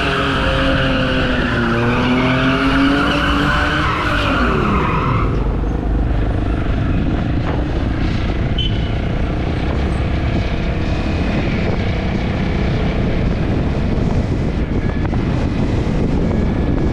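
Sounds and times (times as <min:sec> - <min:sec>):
wind buffeting microphone: 0:04.4 - 0:16.9.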